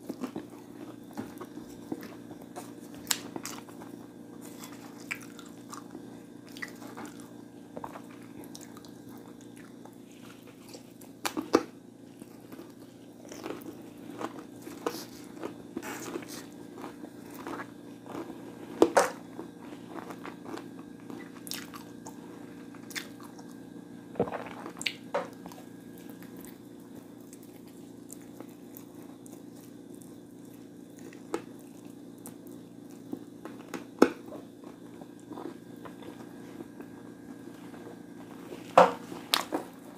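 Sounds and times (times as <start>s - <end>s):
person chewing food: 0.0s - 23.6s, 24.2s - 39.9s.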